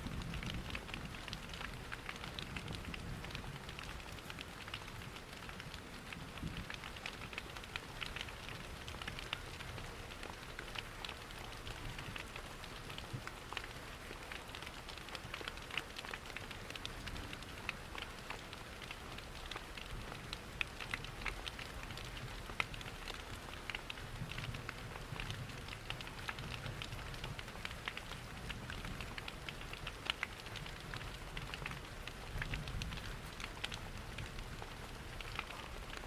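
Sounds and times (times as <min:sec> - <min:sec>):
steady rain: 0:00.0 - 0:36.0
wood fire crackling: 0:00.0 - 0:36.0.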